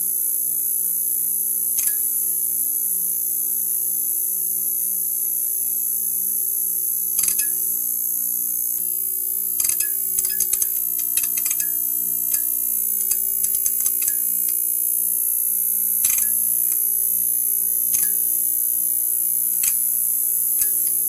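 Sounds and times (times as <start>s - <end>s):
neon sign buzzing: 6.7s - 21.0s.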